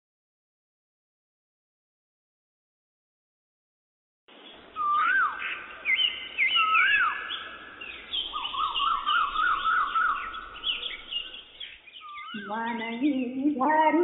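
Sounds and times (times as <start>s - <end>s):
high bird chirps: 4.3s - 13.5s
bird whistled notes: 4.8s - 12.9s
fast wavering bird trill: 4.8s - 13.6s.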